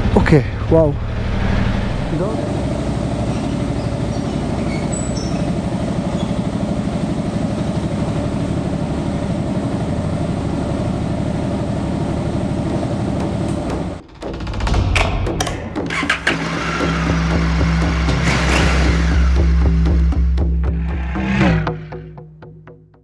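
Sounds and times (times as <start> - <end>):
motorcycle engine pulsing: 12.1 - 22.2.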